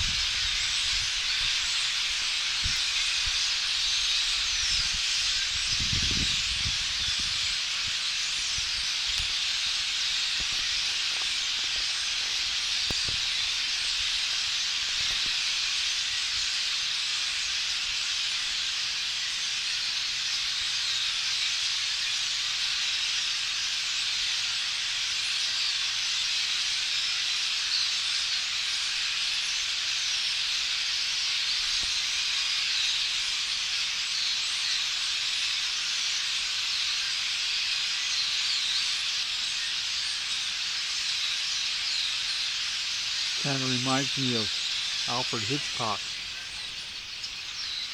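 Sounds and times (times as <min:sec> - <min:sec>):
flock of blackbirds chattering: 0:00.0 - 0:47.9.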